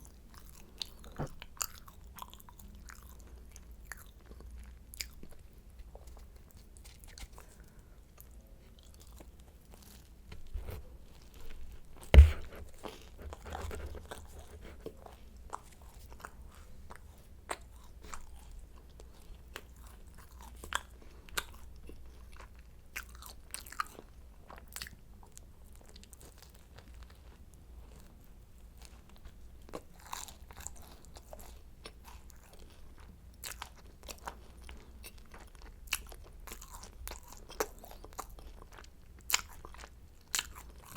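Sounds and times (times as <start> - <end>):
soft chewing: 0.0 - 40.9
crisp pastry crackling: 3.9 - 14.6
loud thump: 12.1 - 12.7.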